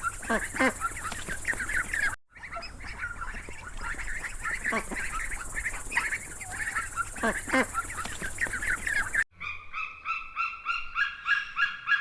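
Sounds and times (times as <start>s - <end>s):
flock of fowl calling: 0.0s - 9.2s.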